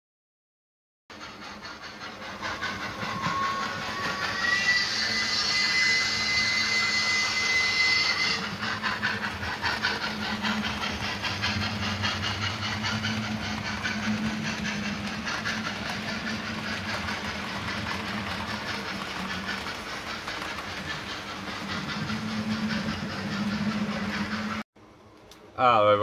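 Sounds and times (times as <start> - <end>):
steam train chuffing with hiss: 1.1 - 24.6
steam whistle: 2.6 - 8.7.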